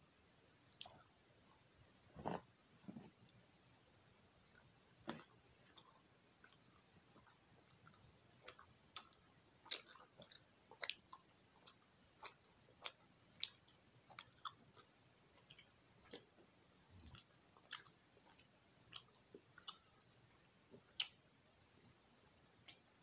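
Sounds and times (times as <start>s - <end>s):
gum chewing clicks and smacks: 0.7s - 1.0s, 5.1s - 16.4s, 17.0s - 20.0s, 20.8s - 21.2s, 22.6s - 23.0s.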